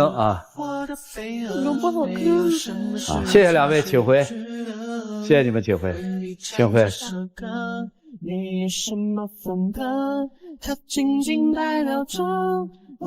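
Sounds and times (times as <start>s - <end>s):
music: 0.0s - 6.9s
woman singing slow melody: 1.4s - 3.3s.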